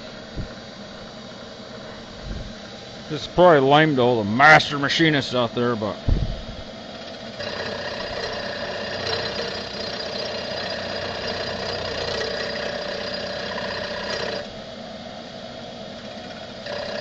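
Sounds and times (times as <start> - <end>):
mill spindle running: 0.0 - 17.0
milling cutter grinding metal: 6.9 - 14.6, 16.1 - 17.0.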